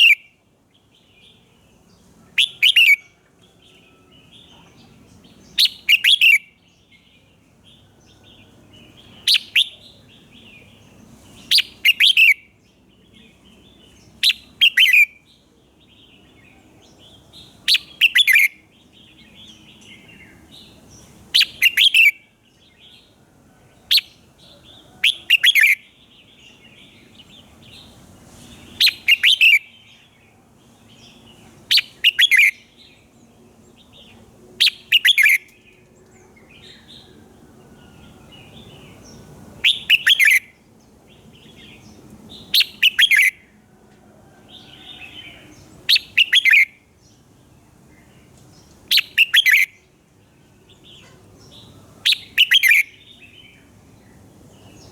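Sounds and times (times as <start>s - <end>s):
bird singing: 0.0s - 54.9s
bird twittering: 2.4s - 3.0s, 5.5s - 6.4s, 9.1s - 10.0s, 11.5s - 12.4s, 14.2s - 15.1s, 17.7s - 18.6s, 21.4s - 22.2s, 25.0s - 25.8s, 28.8s - 29.8s, 31.7s - 32.7s, 34.6s - 35.6s, 39.6s - 40.5s, 42.4s - 43.4s, 45.0s - 46.7s, 48.9s - 49.8s, 52.0s - 53.4s.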